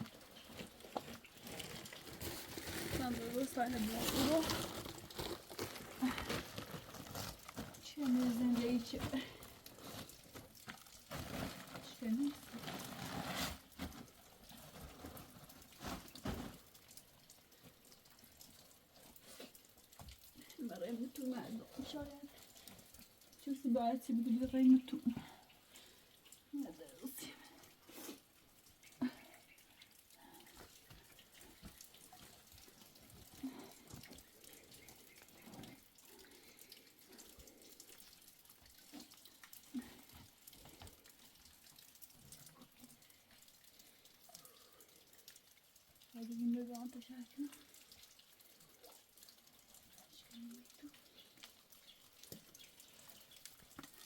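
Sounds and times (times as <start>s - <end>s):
raindrops pattering: 0.0s - 54.0s
water dripping and trickling: 0.0s - 54.0s
small ticks: 47.3s - 54.0s.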